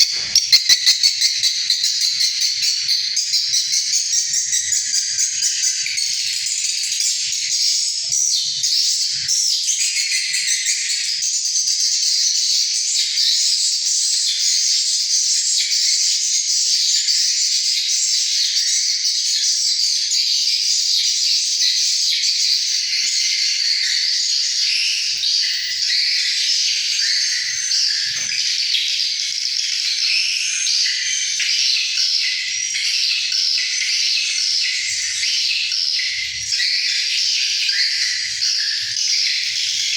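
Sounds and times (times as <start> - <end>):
swiftlets twittering: 0.0 - 1.6.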